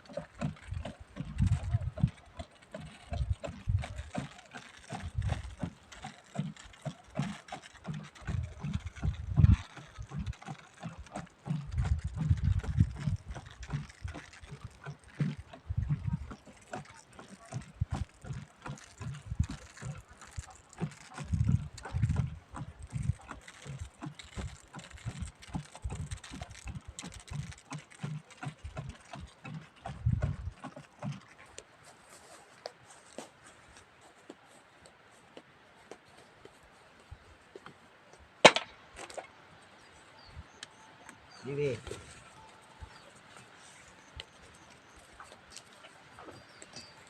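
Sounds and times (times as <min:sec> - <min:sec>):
faint clicks: 0:00.0 - 0:31.7
dull low thumps: 0:00.4 - 0:02.4, 0:08.2 - 0:10.4, 0:11.0 - 0:14.7, 0:21.2 - 0:23.9, 0:29.8 - 0:30.6.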